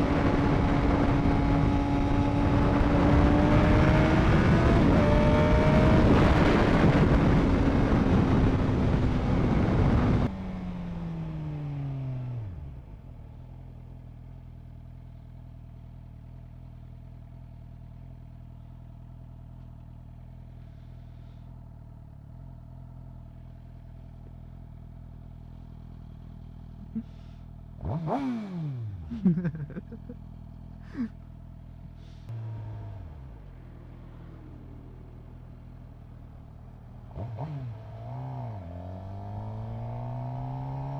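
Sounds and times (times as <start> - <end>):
wind noise: 0.0 - 10.3
motorcycle engine: 0.0 - 40.9.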